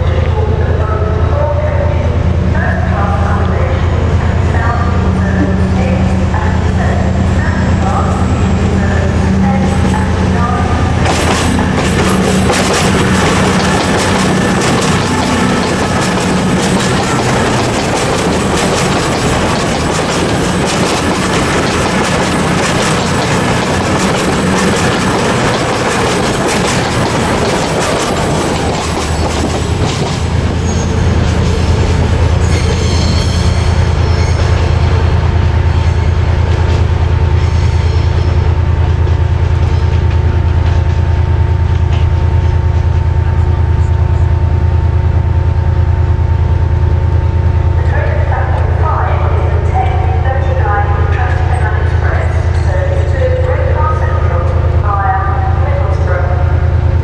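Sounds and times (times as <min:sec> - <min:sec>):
train humming: 0:00.0 - 0:57.0
train wheels on rails: 0:04.2 - 0:45.2, 0:45.8 - 0:57.0
wheel squeal: 0:30.6 - 0:31.0, 0:32.4 - 0:34.6.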